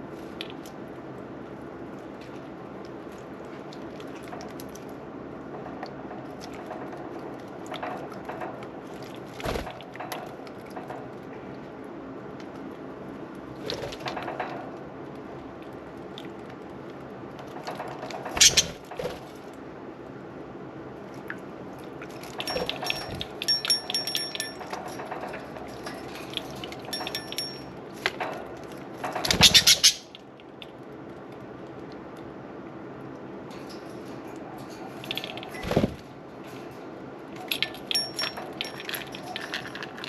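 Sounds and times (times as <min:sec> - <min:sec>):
birds splashing and fluttering: 0:06.3 - 0:11.0, 0:17.4 - 0:19.4, 0:22.0 - 0:30.2, 0:33.6 - 0:36.1.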